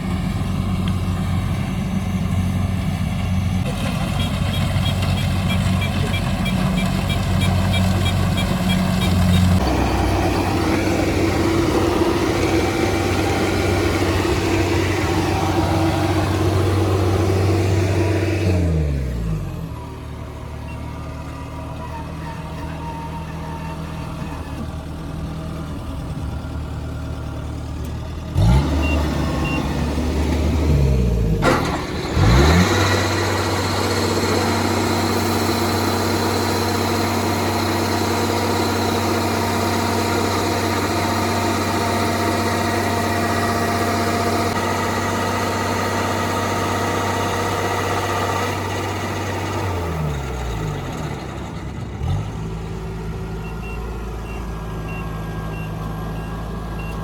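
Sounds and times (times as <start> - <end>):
diesel engine idling and revving: 0.0 - 57.0.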